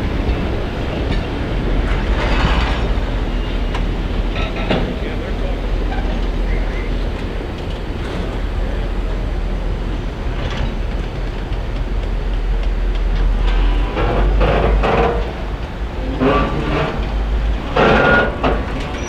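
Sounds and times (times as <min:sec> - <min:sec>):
train clanks and rattles: 0:00.0 - 0:19.0
train rumbling on rails: 0:00.0 - 0:19.0.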